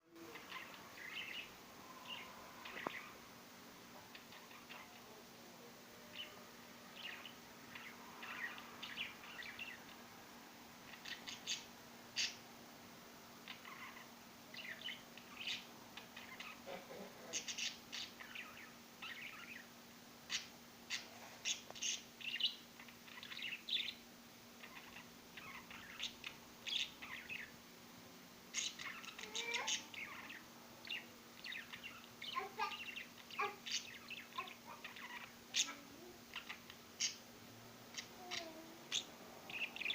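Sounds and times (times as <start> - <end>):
faint low hum: 0.0 - 39.9
birds chirping and squeaking: 0.3 - 3.2, 4.0 - 5.1, 6.1 - 10.0, 10.8 - 12.4, 13.4 - 24.0, 24.6 - 27.6, 28.5 - 37.2, 37.9 - 39.9.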